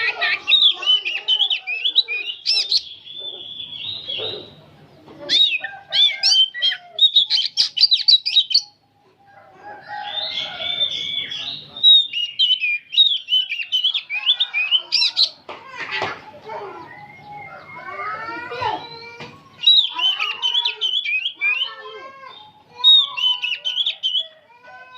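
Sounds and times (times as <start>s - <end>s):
bird singing whistled notes: 1.8s - 4.6s, 10.2s - 13.9s, 19.6s - 21.7s.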